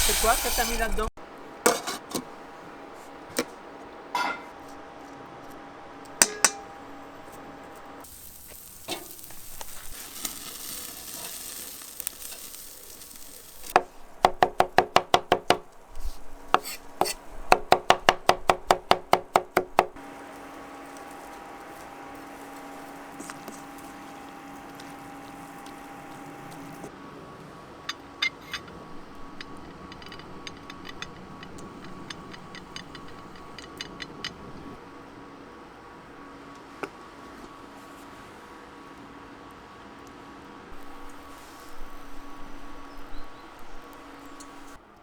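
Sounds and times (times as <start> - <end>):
barbecue sizzling: 0.0 - 45.0
metal utensil tapping: 6.2 - 6.7, 29.4 - 34.5
sharp metal clicks: 27.9 - 34.5.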